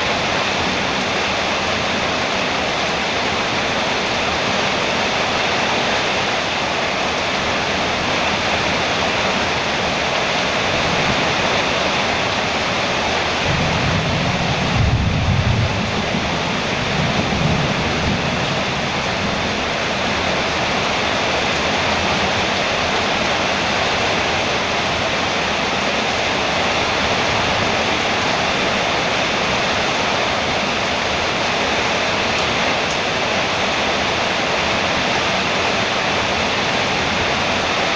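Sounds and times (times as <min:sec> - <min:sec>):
heavy rain on a metal roof: 0:00.0 - 0:37.9
distant thunder rumble: 0:13.4 - 0:20.0.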